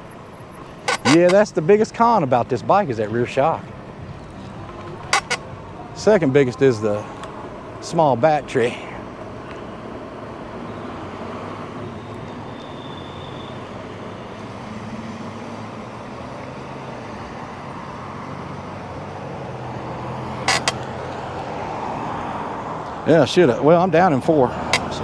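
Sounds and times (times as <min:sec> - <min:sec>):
road and wind rush: 0:00.0 - 0:25.0
sharp clicks: 0:00.6 - 0:01.4, 0:04.7 - 0:05.4, 0:20.5 - 0:20.9, 0:24.8 - 0:25.0.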